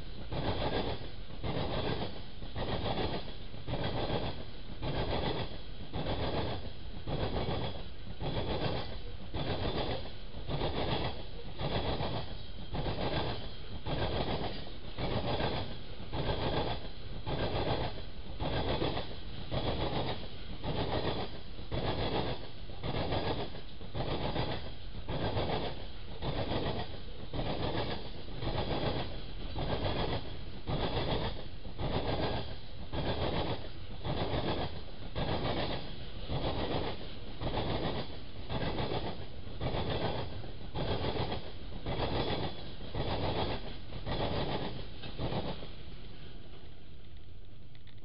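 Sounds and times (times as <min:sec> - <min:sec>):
train wheels beating on rails: 0:00.0 - 0:47.6
continuous train rumble: 0:00.0 - 0:48.0.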